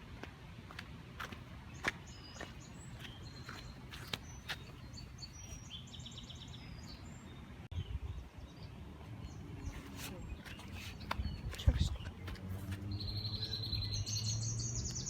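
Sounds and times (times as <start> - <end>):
songbirds chirping: 0.0 - 15.0
bird trill: 12.9 - 15.0.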